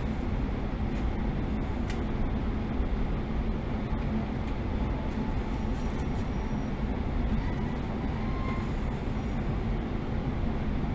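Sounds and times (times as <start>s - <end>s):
train wheels rumbling: 0.0s - 10.9s
faint brake squeals: 5.1s - 9.6s.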